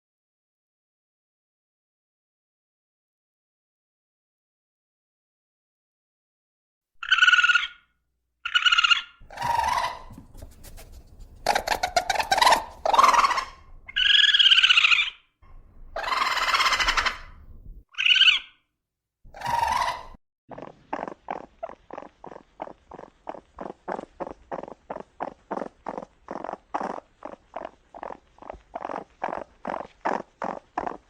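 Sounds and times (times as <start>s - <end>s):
animal calls: 7.0s - 15.3s, 15.9s - 18.6s, 19.3s - 31.0s.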